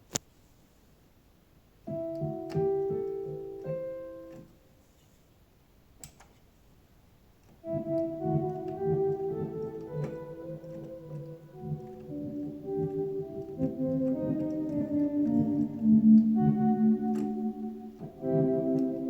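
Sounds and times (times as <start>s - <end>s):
piano-like keyboard notes: 1.8s - 4.6s, 7.6s - 19.0s.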